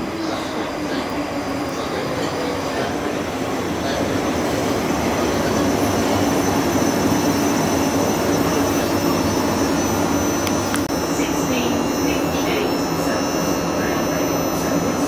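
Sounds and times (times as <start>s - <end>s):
train hum: 0.0s - 15.0s
train wheels rumbling on rails: 0.0s - 15.0s.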